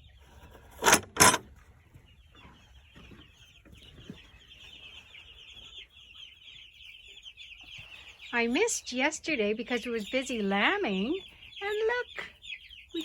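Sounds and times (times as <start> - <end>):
chicks peeping: 0.0 - 0.7, 1.4 - 13.0
sharp clatter: 0.7 - 1.5.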